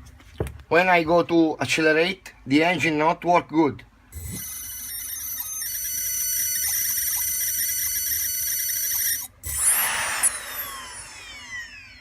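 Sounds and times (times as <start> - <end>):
electric motor high-pitched whine: 4.2 - 12.0.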